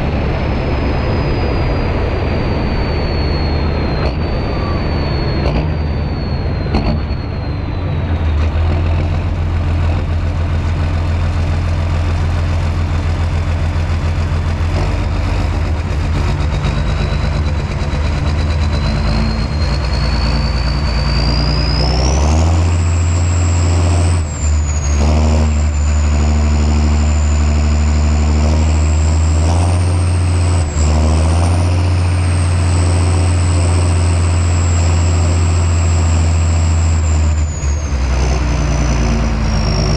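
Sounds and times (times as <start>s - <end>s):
tractor diesel engine running: 0.0s - 39.9s
high thin whistle: 0.8s - 8.1s, 16.7s - 28.2s.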